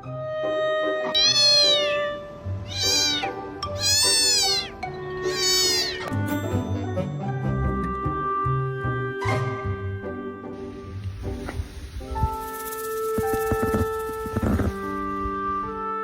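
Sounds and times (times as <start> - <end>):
background music: 0.0 - 16.0
cat meowing: 1.0 - 6.1.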